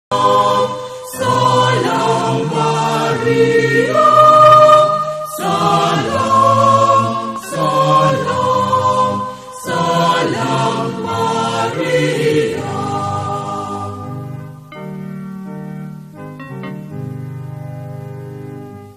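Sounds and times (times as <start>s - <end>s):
choir singing a hymn: 0.1s - 14.7s.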